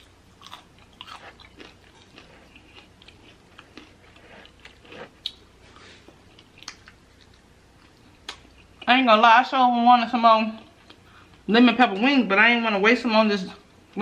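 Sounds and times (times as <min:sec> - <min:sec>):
chewing crispy fried chicken: 0:00.0 - 0:08.9.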